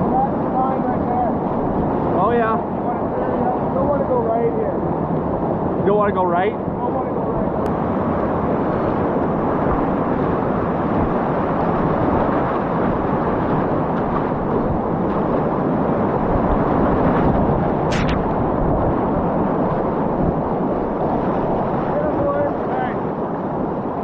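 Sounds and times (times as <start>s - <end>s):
brief sharp sound: 17.9s - 18.3s.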